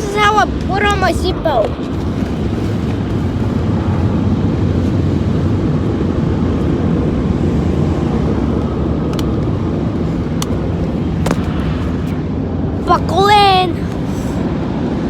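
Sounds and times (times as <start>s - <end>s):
low rumble inside car: 0.0s - 15.0s.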